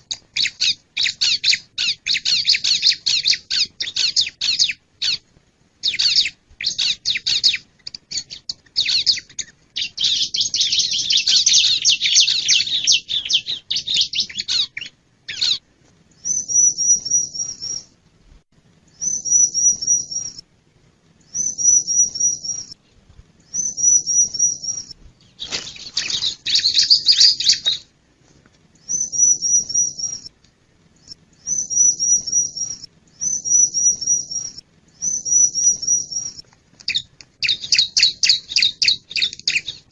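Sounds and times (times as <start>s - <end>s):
bird trilled song phrases: 0.0s - 5.2s, 5.8s - 15.6s, 18.9s - 20.4s, 21.3s - 22.8s, 23.5s - 27.9s, 28.8s - 30.3s, 31.0s - 39.9s.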